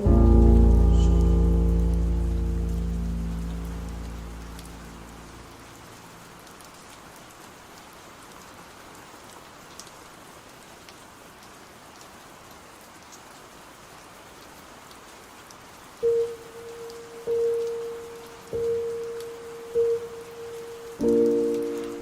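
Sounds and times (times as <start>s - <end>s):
low musical tone: 0.0s - 5.6s, 16.0s - 22.0s
steady rain: 0.0s - 22.0s
raindrop ticks: 0.6s - 7.3s, 9.3s - 10.0s, 14.9s - 22.0s.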